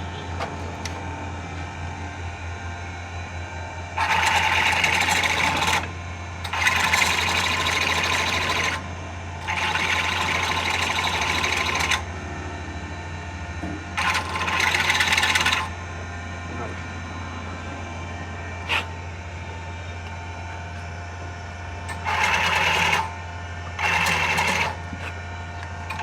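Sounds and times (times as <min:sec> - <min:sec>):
steady low hum: 0:00.0 - 0:04.0, 0:12.0 - 0:26.0
workshop tool hissing clatter: 0:18.6 - 0:18.9.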